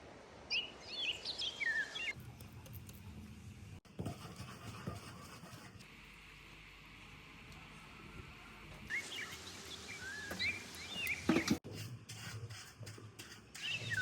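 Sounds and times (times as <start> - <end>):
faint outdoor ambience: 0.0 - 14.0
small songbird chirping: 8.9 - 11.6.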